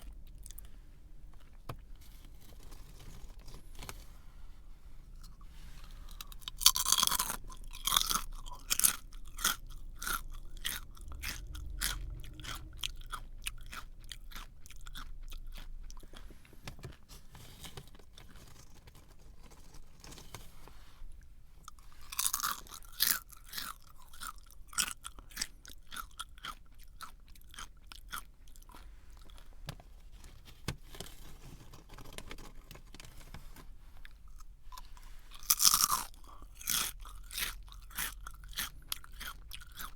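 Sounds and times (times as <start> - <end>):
chewing crunches: 0.0 - 0.8, 5.2 - 17.1, 21.6 - 29.5, 34.0 - 39.9
crunchy snack bite: 6.1 - 16.0, 22.0 - 29.4, 35.3 - 39.9.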